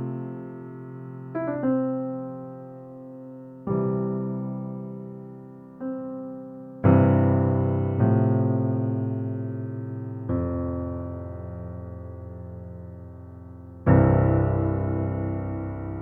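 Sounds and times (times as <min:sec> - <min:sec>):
slow soft piano chords: 0:00.0 - 0:16.0.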